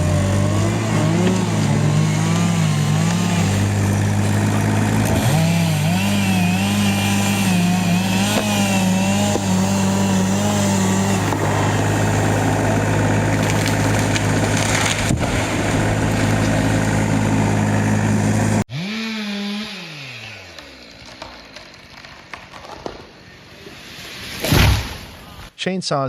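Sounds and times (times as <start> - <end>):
chainsaw cutting wood: 0.0 - 23.3.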